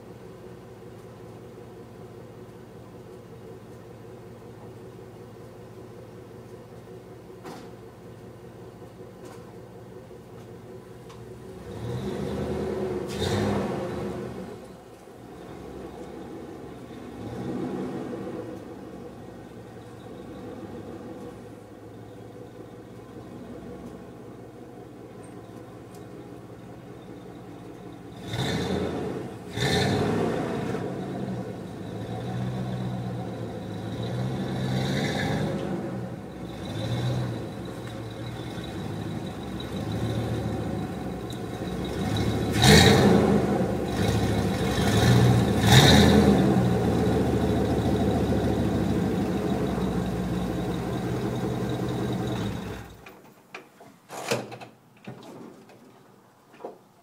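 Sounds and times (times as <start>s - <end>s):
vee eight engine idling and revving: 8.0s - 53.0s.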